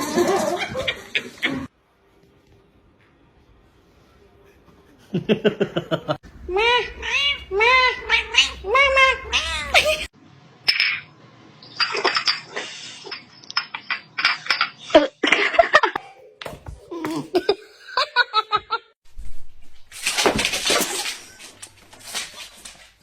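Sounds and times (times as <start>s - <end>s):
people laughing: 5.0s - 6.2s, 16.9s - 19.0s.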